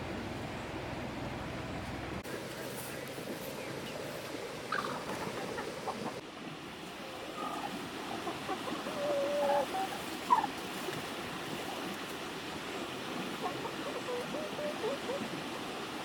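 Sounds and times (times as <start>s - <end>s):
poultry calling: 4.7s - 6.2s.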